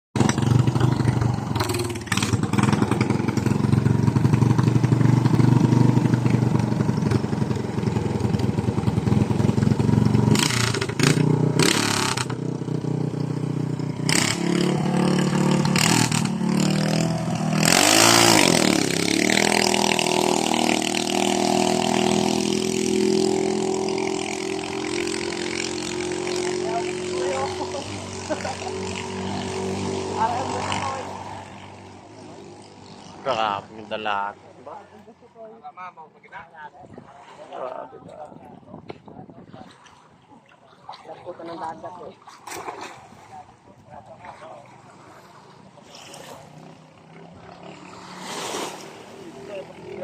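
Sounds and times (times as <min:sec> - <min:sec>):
small boat engine running: 0:00.2 - 0:35.1, 0:43.0 - 0:50.0
loud rushing noise bursts: 0:48.2 - 0:49.2.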